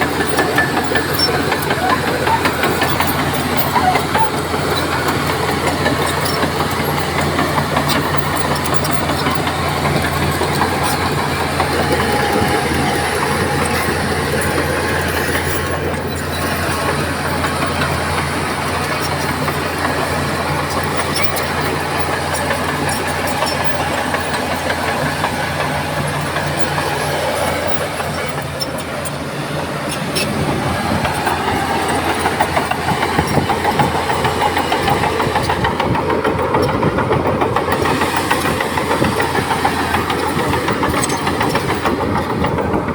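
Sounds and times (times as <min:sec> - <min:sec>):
bulldozer diesel engine running: 0:00.0 - 0:42.9.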